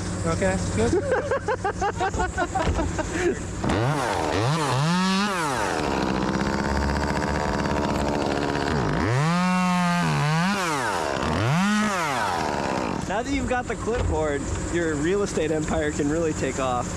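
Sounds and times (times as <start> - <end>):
chainsaw revving: 3.5 - 13.5.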